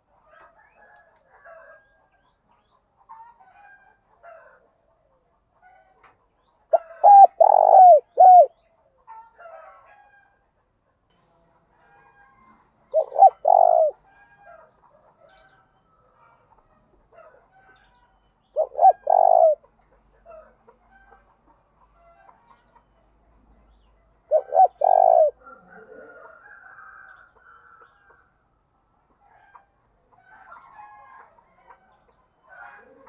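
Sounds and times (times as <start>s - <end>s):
dove cooing: 6.7s - 8.6s, 12.9s - 14.1s, 18.6s - 19.6s, 24.3s - 26.3s, 32.5s - 33.0s.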